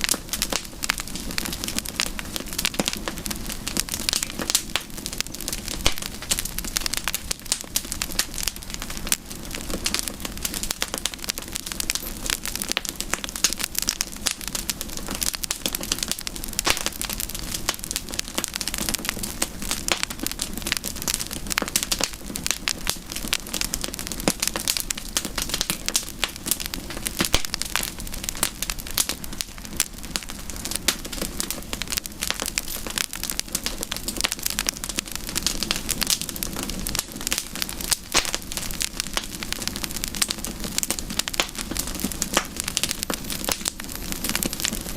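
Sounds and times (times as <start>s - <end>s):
campfire crackling and popping: 0.0s - 44.9s
soft hiss of burning: 0.0s - 44.9s.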